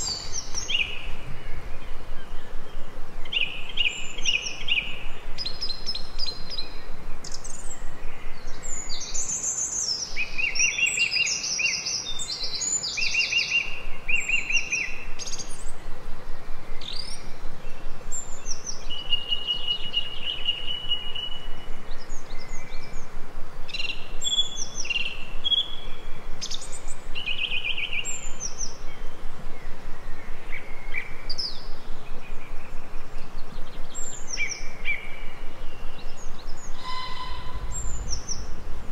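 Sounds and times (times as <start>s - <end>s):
songbirds chirping and trilling: 0.0s - 38.9s
steady background hiss: 0.0s - 38.9s
buzzy bird trill: 35.7s - 38.6s.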